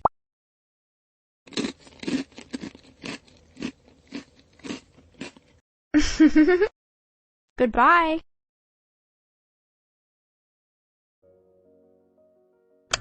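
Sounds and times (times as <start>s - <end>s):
crunchy food chewing: 1.5s - 5.6s.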